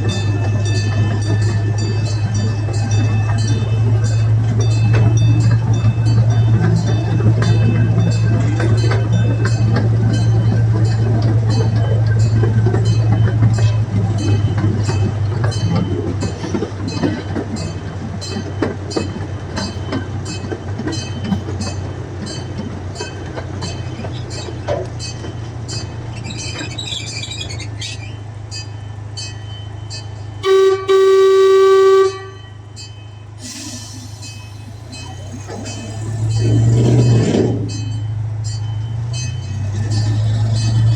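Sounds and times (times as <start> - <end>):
train engine hum: 0.0 - 40.9
wheels clicking over rails: 0.0 - 40.9
train horn toots: 30.4 - 32.7.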